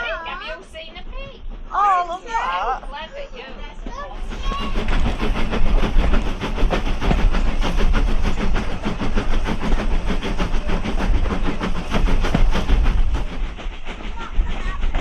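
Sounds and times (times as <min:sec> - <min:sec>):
train carriage rumbling: 0:00.0 - 0:15.0
wheels rattling clatter: 0:03.4 - 0:15.0.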